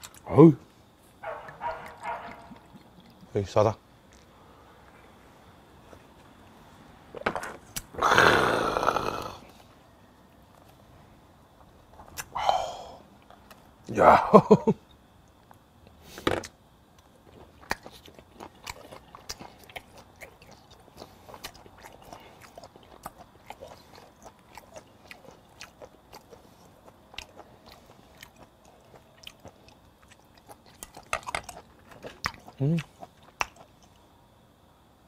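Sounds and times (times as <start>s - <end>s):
person chewing wet mouth sounds: 1.4s - 3.4s, 12.1s - 12.4s, 17.0s - 34.0s.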